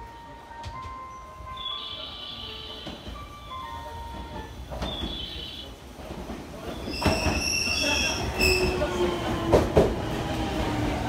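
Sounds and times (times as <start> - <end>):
train wheels squealing: 6.7 - 8.9.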